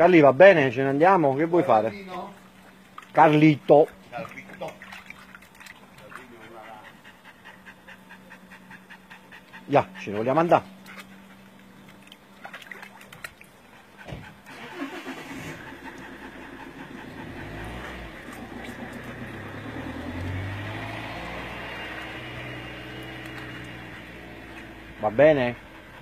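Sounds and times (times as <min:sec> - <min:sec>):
car engine running: 0:14.1 - 0:26.0.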